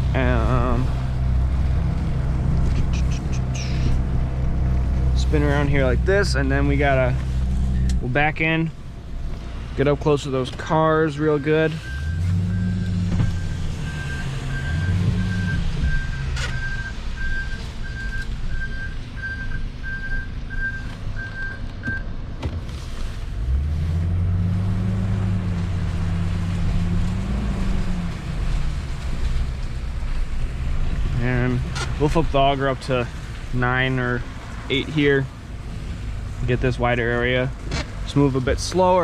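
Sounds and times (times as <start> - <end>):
truck engine revving: 0.0 - 8.7, 9.6 - 21.6, 23.3 - 39.0
truck backup alarm beeping: 11.1 - 22.1.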